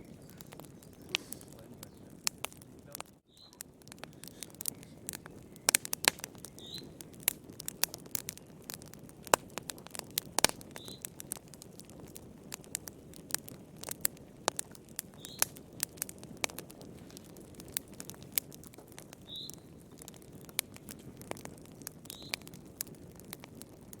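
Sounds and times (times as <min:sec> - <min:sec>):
wood fire crackling: 0:00.0 - 0:24.0
faint high chirp: 0:03.3 - 0:03.6, 0:06.6 - 0:07.0.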